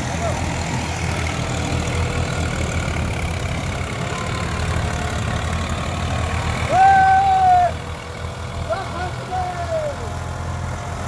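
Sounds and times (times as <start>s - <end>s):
tractor diesel engine rumbling: 0.0s - 11.0s
loud high held call: 6.6s - 7.8s.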